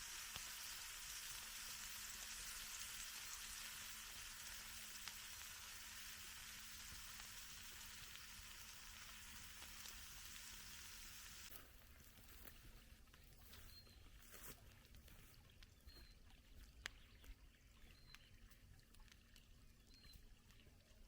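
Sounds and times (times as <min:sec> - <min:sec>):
food sizzling in a pan: 0:00.0 - 0:11.5.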